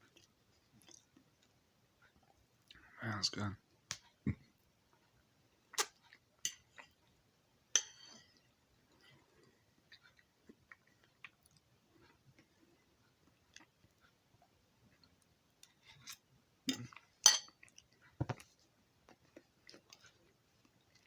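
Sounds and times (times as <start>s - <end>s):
faint clicks and taps: 3.8s - 5.1s, 18.0s - 20.8s.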